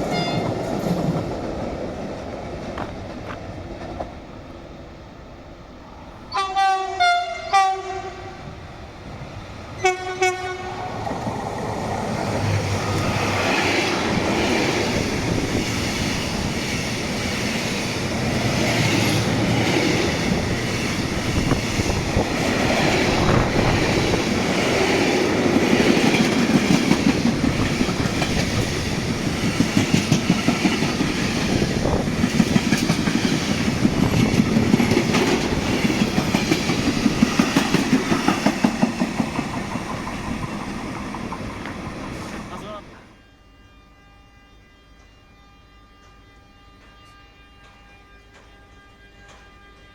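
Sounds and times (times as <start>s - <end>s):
train wagons rumbling: 0.0s - 4.7s, 8.9s - 43.1s
train horn blasts: 6.3s - 8.5s, 9.8s - 11.1s, 43.0s - 49.9s.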